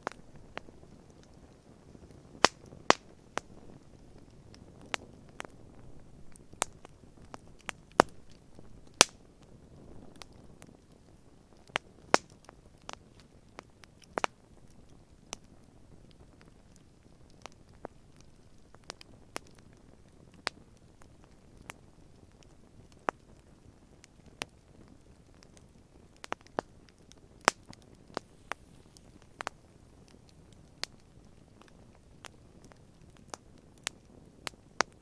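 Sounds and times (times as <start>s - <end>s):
campfire crackling and popping: 0.0s - 35.0s
low steady hiss: 0.0s - 35.0s.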